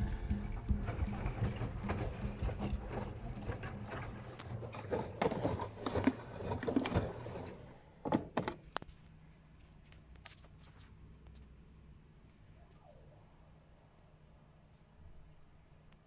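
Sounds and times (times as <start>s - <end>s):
washing machine drum knocks: 0.0s - 4.3s
water and laundry sloshing: 0.0s - 7.8s
faint steady hum: 0.0s - 16.0s.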